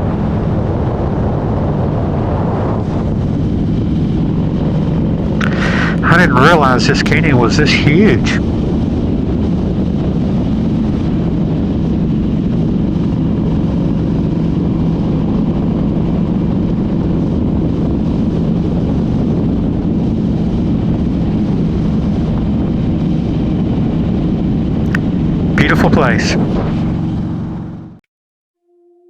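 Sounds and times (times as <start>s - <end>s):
motorcycle engine cruising: 0.1s - 28.0s.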